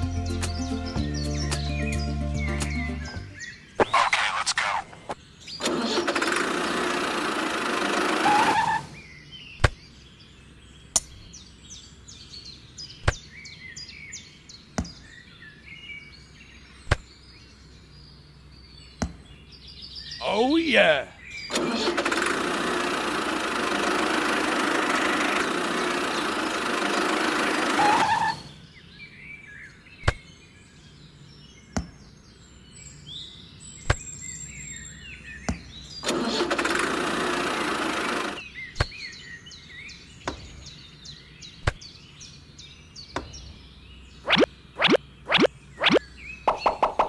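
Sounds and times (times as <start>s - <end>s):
faint birdsong: 0.0s - 47.0s
toy tractor engine sound: 5.6s - 9.0s, 20.2s - 28.5s, 36.0s - 38.4s.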